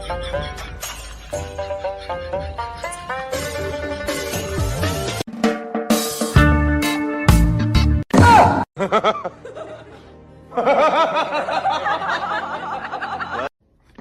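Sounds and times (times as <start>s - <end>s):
overlapping laughter: 0.0s - 4.8s, 8.8s - 13.5s.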